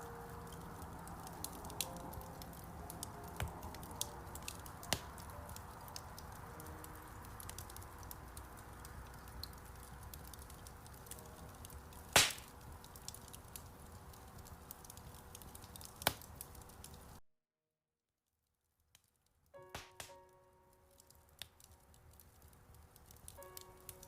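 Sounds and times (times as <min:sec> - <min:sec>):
wood fire crackling: 0:00.0 - 0:17.2, 0:18.7 - 0:24.0
loud pop from fire: 0:12.1 - 0:12.5.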